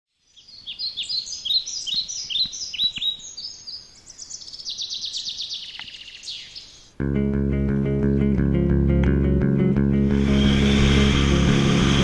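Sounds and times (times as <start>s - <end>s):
songbird chirping and trilling: 0.1s - 7.0s.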